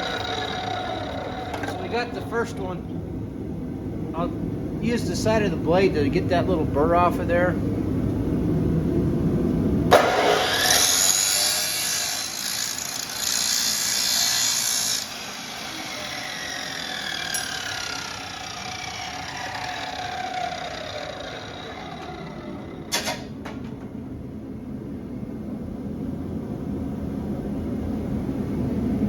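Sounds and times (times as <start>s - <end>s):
chop saw grinding steel: 0.0s - 2.3s, 9.9s - 23.3s
saw blade whine spinning down: 0.0s - 2.8s, 9.9s - 23.4s.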